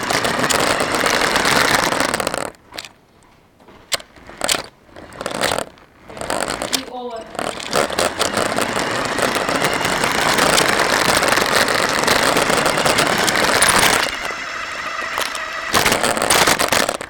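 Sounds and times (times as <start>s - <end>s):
rc car rattling over rough ground: 0.0s - 3.0s, 4.0s - 17.0s.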